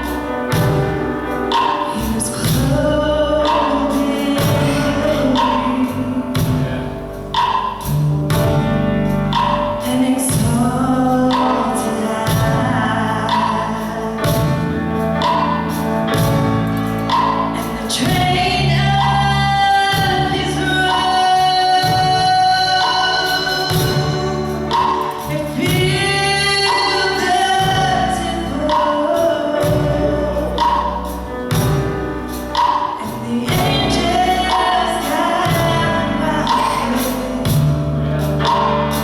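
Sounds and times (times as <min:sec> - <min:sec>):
instrumental accompaniment: 0:00.0 - 0:39.0
gospel singing: 0:09.8 - 0:31.8, 0:32.6 - 0:39.0.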